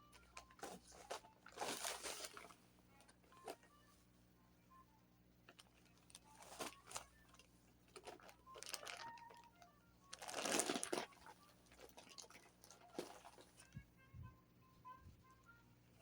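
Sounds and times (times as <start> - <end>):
packaging crinkling: 0.2 - 2.6, 5.5 - 13.7.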